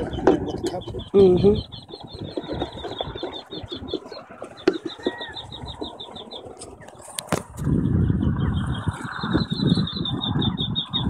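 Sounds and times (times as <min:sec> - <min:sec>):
quail chick peeping: 0:00.0 - 0:11.0.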